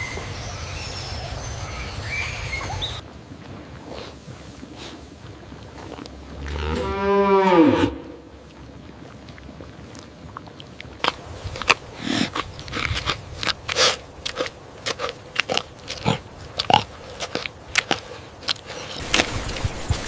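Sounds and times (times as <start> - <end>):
animal chewing and crunching food: 3.4 - 7.0, 8.4 - 20.0.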